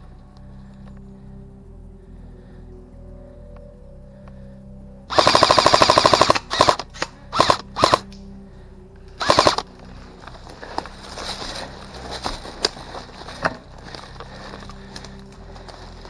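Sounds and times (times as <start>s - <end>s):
airsoft rifle firing bursts: 5.1s - 8.1s, 9.2s - 9.6s.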